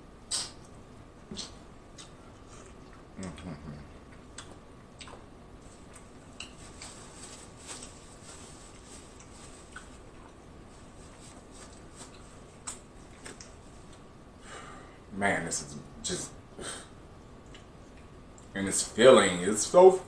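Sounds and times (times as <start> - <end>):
wet chewing mouth sounds: 1.3 - 7.0, 8.7 - 10.5.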